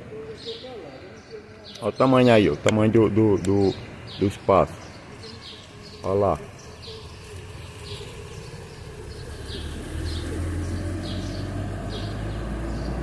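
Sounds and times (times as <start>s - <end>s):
small bird chirping: 0.2s - 13.0s.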